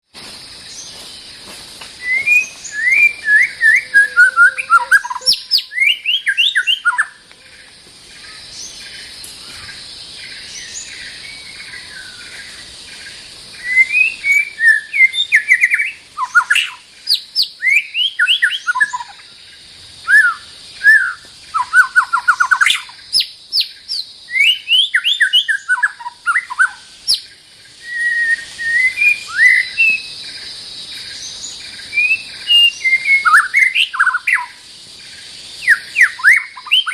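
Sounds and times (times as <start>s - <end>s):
steady high hiss: 0.0s - 36.9s
bird singing whistles and trills: 2.0s - 7.5s, 13.5s - 19.4s, 20.0s - 36.9s.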